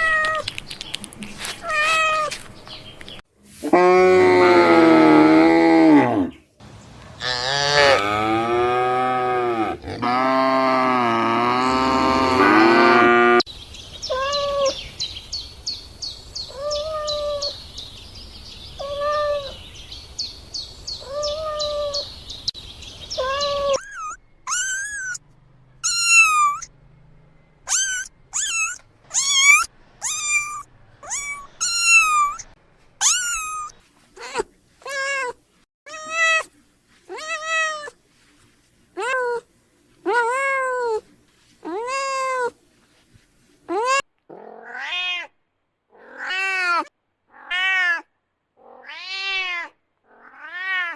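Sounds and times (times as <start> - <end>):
cat meowing: 0.0 - 0.4, 27.7 - 36.5, 37.1 - 38.0, 43.7 - 45.4, 46.0 - 50.9
cow mooing: 3.7 - 6.4, 7.2 - 13.4
kitten meowing: 25.8 - 26.7, 27.7 - 35.3.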